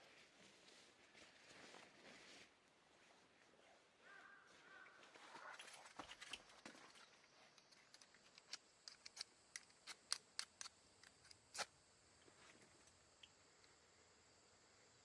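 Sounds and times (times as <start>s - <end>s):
soft rustling: 0.0s - 3.3s.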